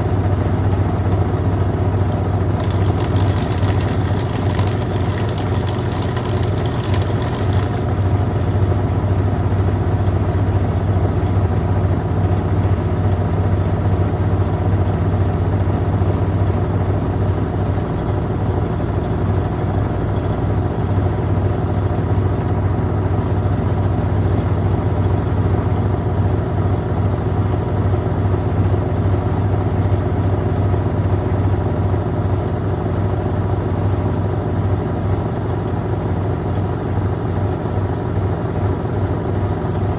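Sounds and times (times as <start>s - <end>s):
washing machine motor humming: 2.6s - 10.4s.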